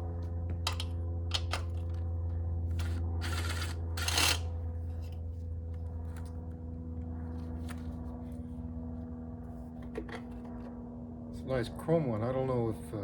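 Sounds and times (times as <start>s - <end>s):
steady low hum: 0.0s - 13.0s
metal scraping: 2.7s - 4.5s.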